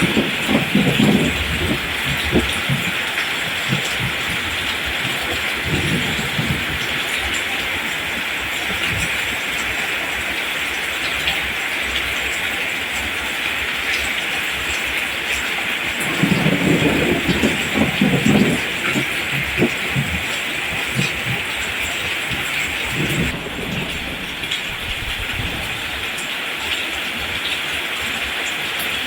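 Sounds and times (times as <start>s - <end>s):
low uneven rumbling: 0.0s - 9.3s, 16.0s - 26.2s
steady rain falling: 0.0s - 29.0s.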